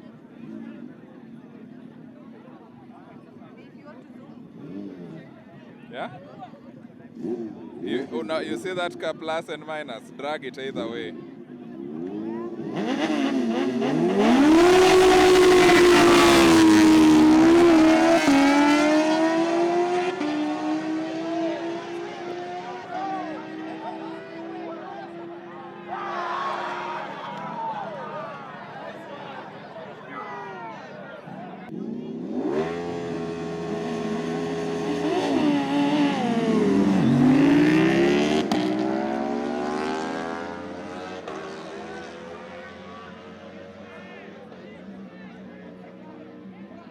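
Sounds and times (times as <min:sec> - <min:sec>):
superbike engine revving: 0:07.1 - 0:08.6, 0:11.8 - 0:25.6, 0:31.7 - 0:43.8.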